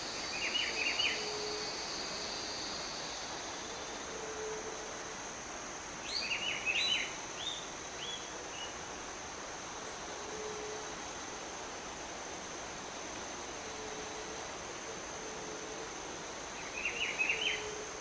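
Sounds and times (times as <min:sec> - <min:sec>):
constant hiss: 0:00.0 - 0:18.0
insect drone: 0:00.0 - 0:18.0
bird singing: 0:00.2 - 0:01.6, 0:06.0 - 0:08.8, 0:16.6 - 0:17.8.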